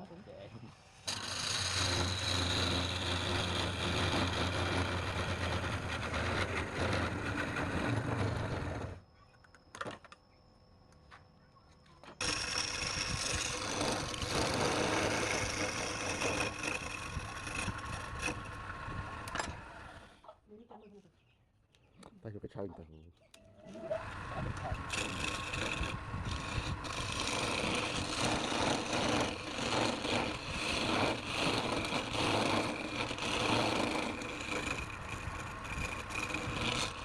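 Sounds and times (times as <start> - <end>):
power tool grinding: 0.9 - 9.0, 12.2 - 20.2, 23.7 - 37.0.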